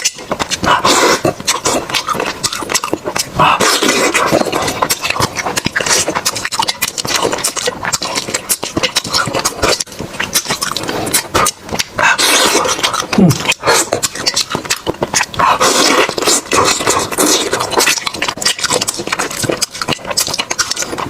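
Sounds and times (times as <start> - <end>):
crunching and chewing food: 0.0 - 21.0.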